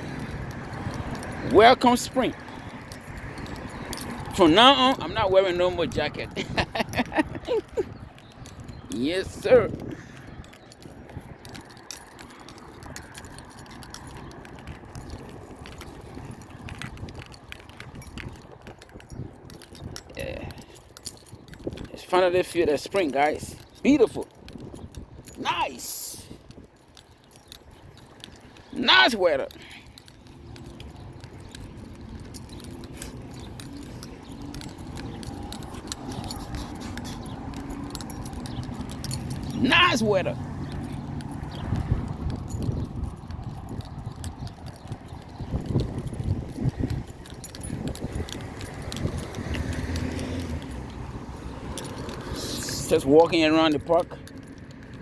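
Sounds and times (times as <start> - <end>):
small clicks and rattles: 0.0 - 55.0
scattered small clicks: 29.5 - 39.7, 40.4 - 55.0.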